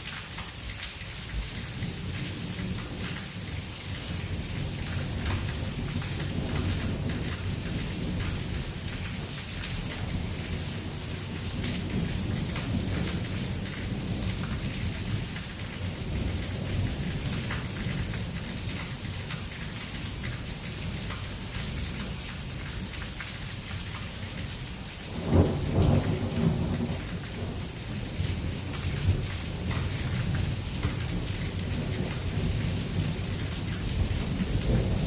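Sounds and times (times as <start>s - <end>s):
loud thunderclap: 25.1s - 28.2s, 34.0s - 35.0s.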